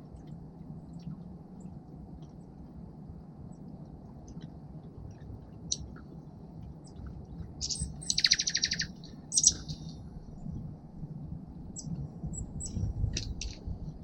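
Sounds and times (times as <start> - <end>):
low steady background rumble: 0.0 - 14.0
songbirds chirping: 5.7 - 10.3
buzzy bird trill: 7.6 - 9.9.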